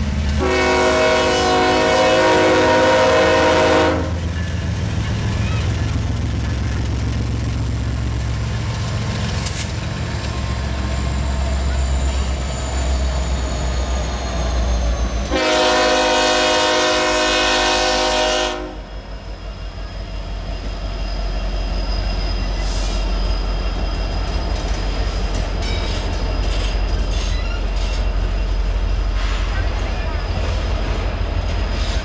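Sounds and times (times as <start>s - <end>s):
freight train rumbling past: 0.0s - 32.0s
multi-note train horn: 0.3s - 4.2s, 15.2s - 19.0s
wheels clicking on rails: 23.7s - 32.0s.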